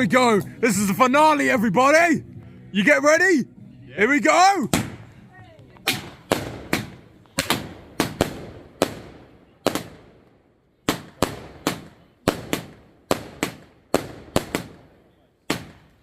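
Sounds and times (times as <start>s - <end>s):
fireworks bangs echoing: 4.7s - 5.1s, 5.8s - 16.0s.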